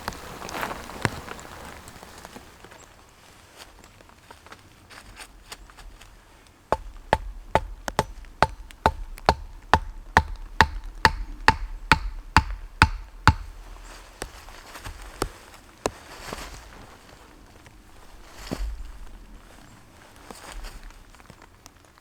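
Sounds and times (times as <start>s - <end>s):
hard strikes on wood: 6.7s - 16.0s.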